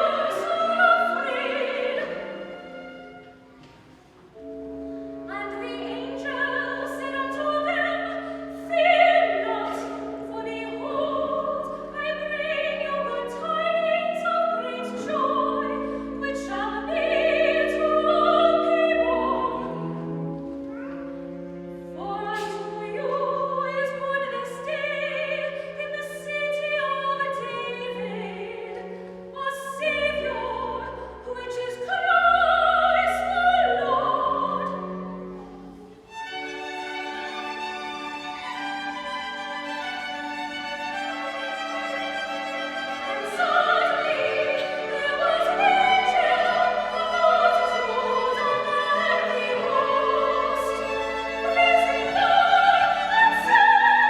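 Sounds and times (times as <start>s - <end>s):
voices singing sacred music: 0.0s - 3.7s, 5.3s - 20.3s, 22.0s - 54.0s.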